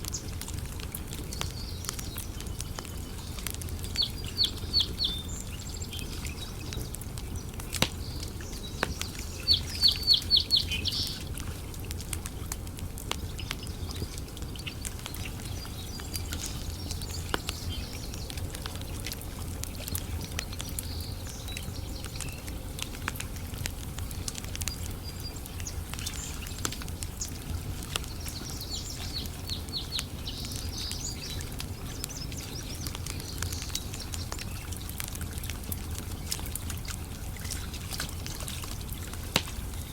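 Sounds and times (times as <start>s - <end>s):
campfire crackling: 0.0s - 39.9s
bird chirping: 1.4s - 6.8s, 8.0s - 11.2s.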